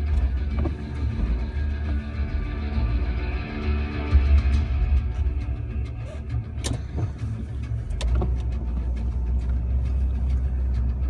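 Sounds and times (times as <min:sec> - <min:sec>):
sharp clicks and knocks: 0:00.0 - 0:02.0, 0:06.5 - 0:09.8
car engine rumble from inside: 0:00.0 - 0:11.0.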